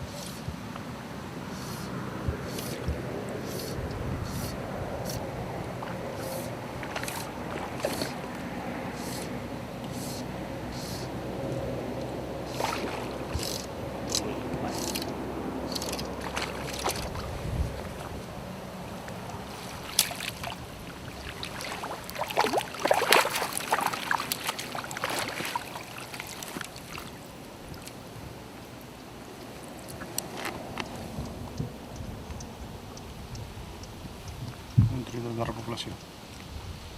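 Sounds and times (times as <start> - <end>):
river water sloshing and splashing: 0.0 - 32.0.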